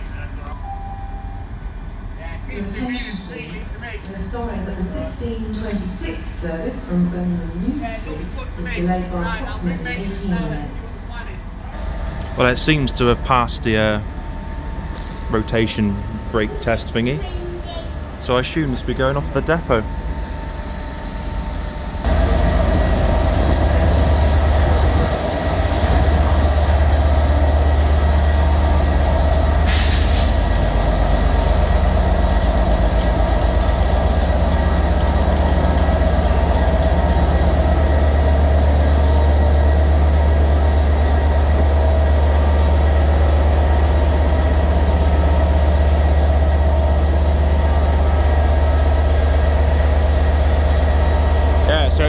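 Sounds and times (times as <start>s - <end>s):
diesel locomotive engine running: 0.0s - 52.0s
air hiss: 29.6s - 30.5s.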